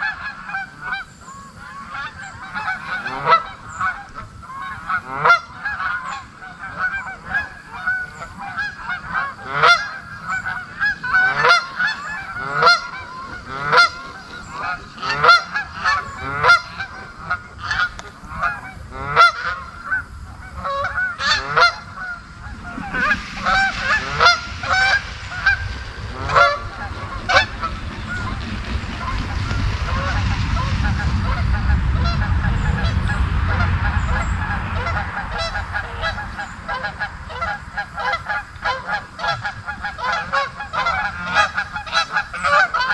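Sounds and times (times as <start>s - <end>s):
geese honking: 0.0s - 42.9s
low rumble: 12.0s - 42.0s.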